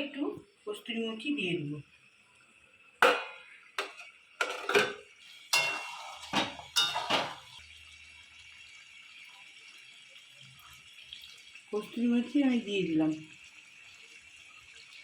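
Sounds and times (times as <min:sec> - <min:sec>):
utensil scraping a pan: 0:04.4 - 0:07.6.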